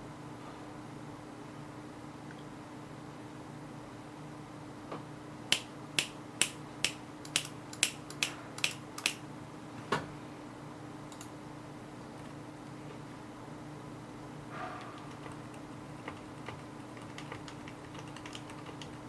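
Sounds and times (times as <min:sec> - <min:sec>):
deeper duller keystroke: 0:05.5 - 0:09.2
mechanical keyboard clacks: 0:05.5 - 0:09.2, 0:15.0 - 0:19.0.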